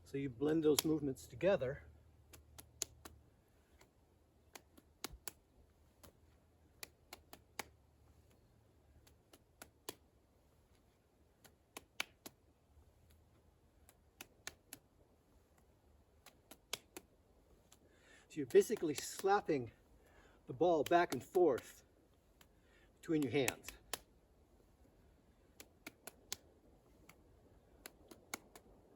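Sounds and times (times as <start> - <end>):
hands slapping medicine ball: 0.4 - 1.5, 2.2 - 8.4, 9.0 - 10.1, 11.4 - 12.4, 13.9 - 14.9, 16.2 - 17.8, 18.4 - 19.7, 20.5 - 22.5, 23.1 - 24.1, 27.8 - 28.9.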